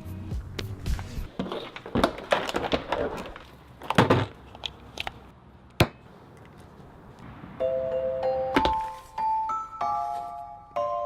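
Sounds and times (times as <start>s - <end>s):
tape rustling and crackling: 1.3s - 5.3s.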